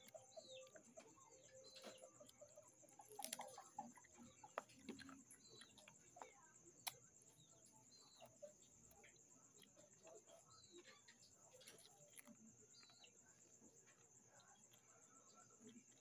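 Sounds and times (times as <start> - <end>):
chewing and crunching crispy food: 0.0 - 16.0.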